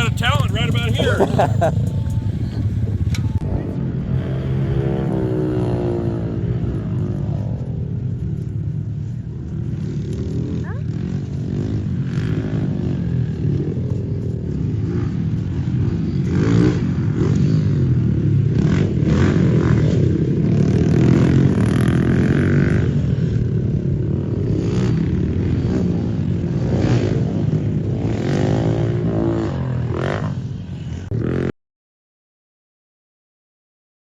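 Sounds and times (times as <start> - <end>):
dirt bike engine revving: 0.0 - 6.2.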